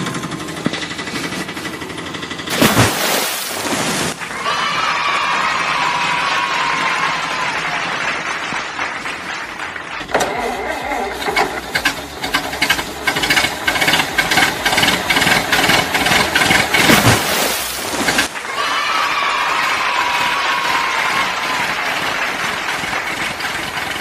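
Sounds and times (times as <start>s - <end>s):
engine rattling: 0.0s - 4.2s, 9.5s - 18.4s, 21.5s - 24.0s
steady hiss: 2.5s - 4.2s.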